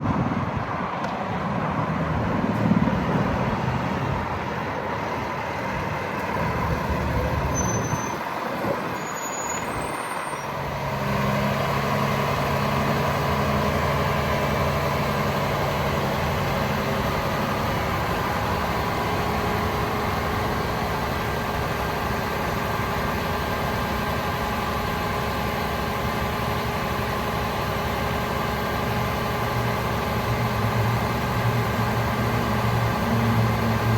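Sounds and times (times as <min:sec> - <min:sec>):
diesel truck engine idling: 0:00.0 - 0:33.9.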